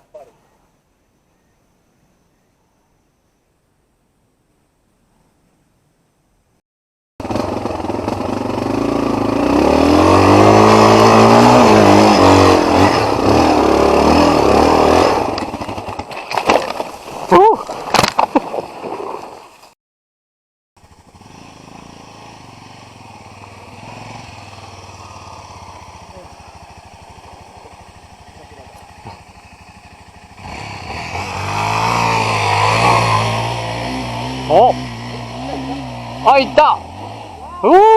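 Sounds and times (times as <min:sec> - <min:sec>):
motorcycle engine revving: 0:07.2 - 0:16.8, 0:20.8 - 0:37.9.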